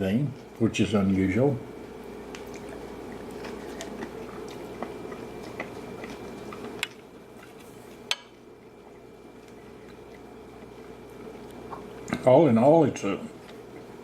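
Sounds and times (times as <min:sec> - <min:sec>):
steady low hum: 0:00.0 - 0:14.0
person chewing food: 0:02.1 - 0:12.2, 0:13.4 - 0:14.0.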